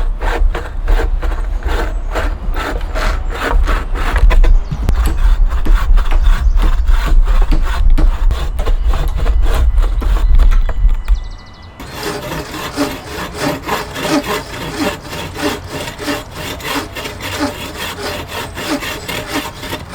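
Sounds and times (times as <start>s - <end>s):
hand saw cutting wood: 0.0s - 11.1s, 11.8s - 19.9s
low rumble: 1.9s - 11.8s.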